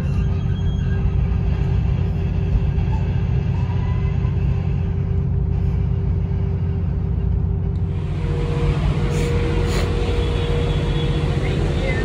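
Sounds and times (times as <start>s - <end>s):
train coach rumbling: 0.0s - 12.0s
steady hum: 4.4s - 12.0s.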